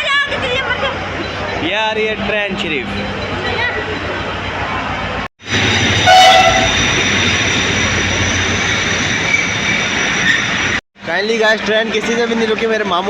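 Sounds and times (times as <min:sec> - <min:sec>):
train rumbling: 0:00.0 - 0:13.0
train horn blast: 0:05.9 - 0:06.8.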